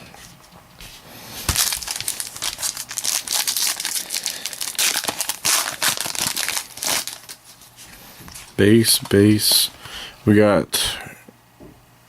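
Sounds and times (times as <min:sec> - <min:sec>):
foil wrapper crinkling: 0:01.4 - 0:09.7.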